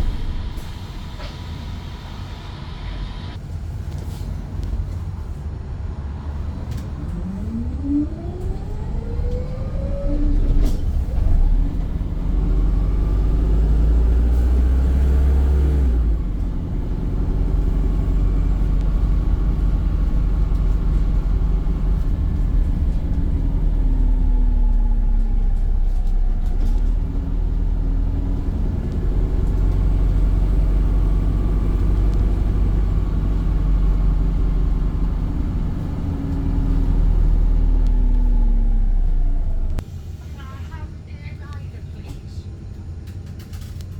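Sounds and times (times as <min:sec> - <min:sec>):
whine rising and falling: 0:00.0 - 0:03.4
bus engine rumble: 0:00.0 - 0:43.9.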